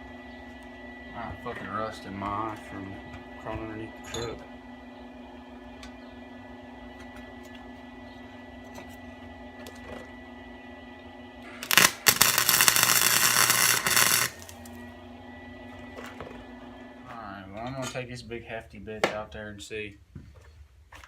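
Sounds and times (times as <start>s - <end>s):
low shop hum: 0.0s - 21.0s
welding arc crackling: 11.6s - 14.8s.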